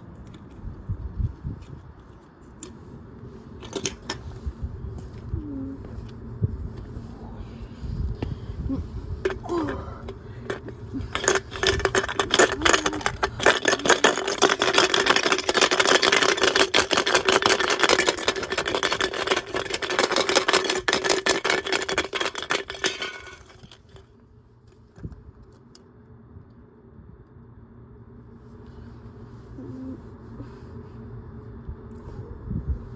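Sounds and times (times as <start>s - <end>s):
plastic bottle rattling in washing machine: 10.5s - 23.8s.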